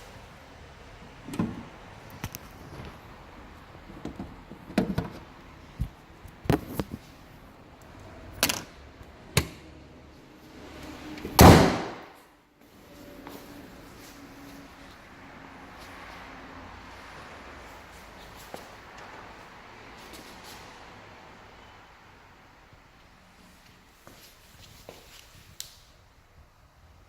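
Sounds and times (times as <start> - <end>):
car panel slamming shut: 11.4 - 12.0.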